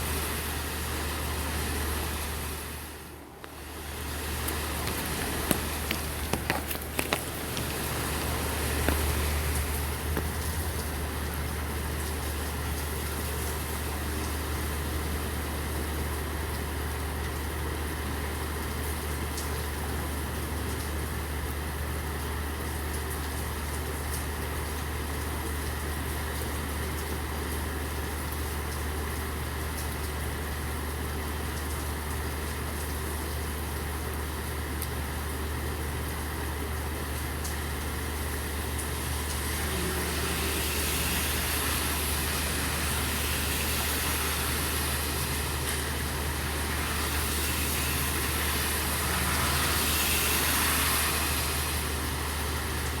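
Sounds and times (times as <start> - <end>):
truck engine idling: 0.0 - 13.0
steady rain falling: 0.0 - 53.0
sharp drips: 3.4 - 15.4.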